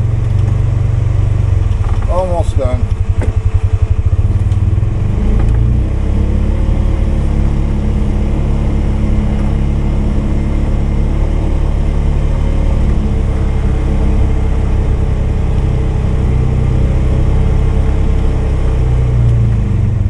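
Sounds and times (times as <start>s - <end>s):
single-cylinder engine running: 0.0s - 20.0s.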